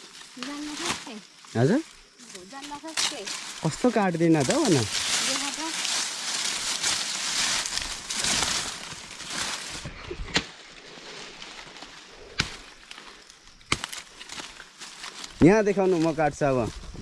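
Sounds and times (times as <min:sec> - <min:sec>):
dry maize leaves rustling: 0:00.0 - 0:17.0
stalks snapping: 0:02.6 - 0:03.7, 0:04.4 - 0:10.6, 0:11.4 - 0:15.5.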